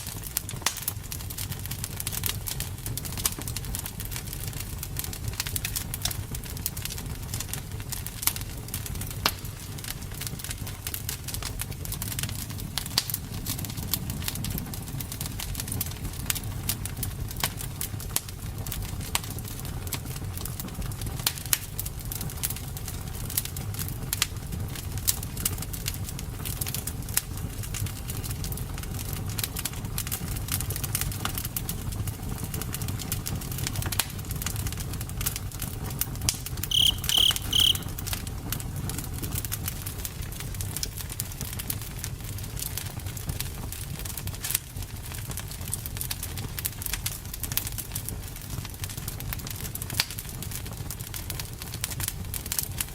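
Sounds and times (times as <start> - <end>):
campfire crackling and popping: 0.0 - 37.9, 39.0 - 52.9
high pulsed chirp: 36.7 - 37.9.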